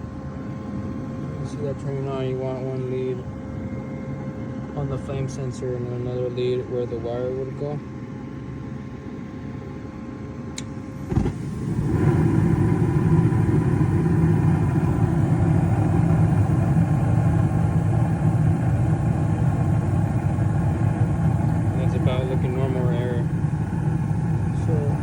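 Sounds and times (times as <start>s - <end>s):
furnace hum: 0.0s - 25.0s
burners igniting thump: 11.0s - 13.6s
burner roar: 11.0s - 25.0s.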